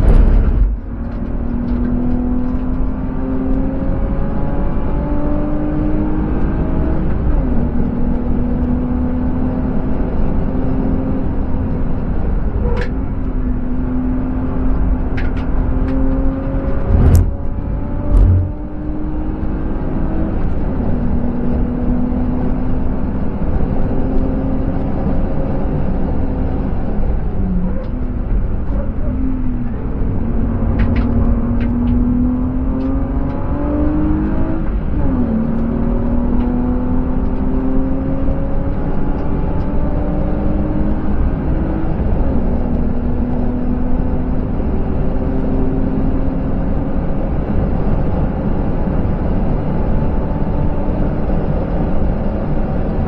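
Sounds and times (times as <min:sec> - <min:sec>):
car engine revving and shifting: 0:00.0 - 0:53.0
tyre and wind noise: 0:15.4 - 0:19.4.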